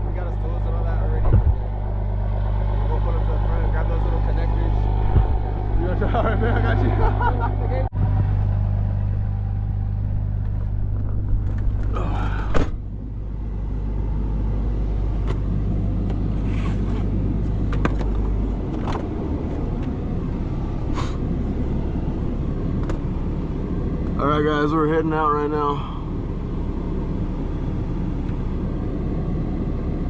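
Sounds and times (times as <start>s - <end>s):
truck engine idling: 0.0s - 30.0s
loud thump: 1.2s - 1.7s, 5.0s - 5.4s.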